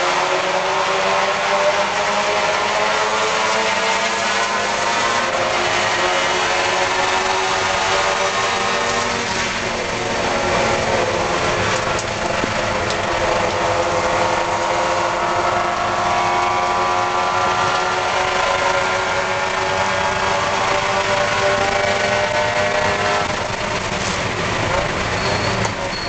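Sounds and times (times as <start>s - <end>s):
race car engine running: 0.0s - 26.0s
wind and road noise: 0.0s - 26.0s.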